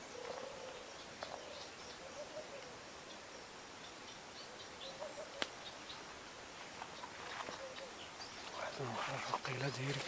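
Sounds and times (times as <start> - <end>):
small click: 5.4 - 5.6.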